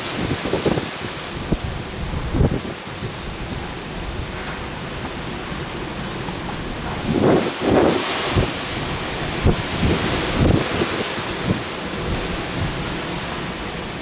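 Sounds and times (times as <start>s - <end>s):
wind and rain rushing: 0.0s - 14.0s
wind buffeting microphone: 0.0s - 14.0s.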